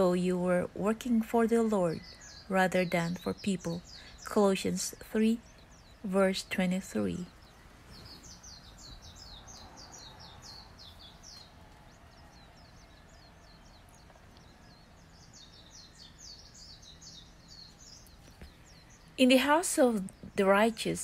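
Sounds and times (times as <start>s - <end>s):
birds chirping: 0.0s - 21.0s
faint low hum: 0.0s - 21.0s.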